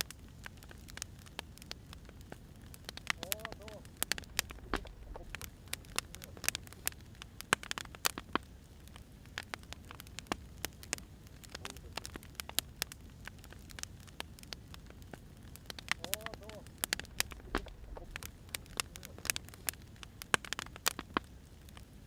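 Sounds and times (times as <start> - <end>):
burning firewood popping: 0.0 - 22.0
wood fire crackling: 0.0 - 22.0
low steady rumble: 1.7 - 7.6, 8.6 - 20.3.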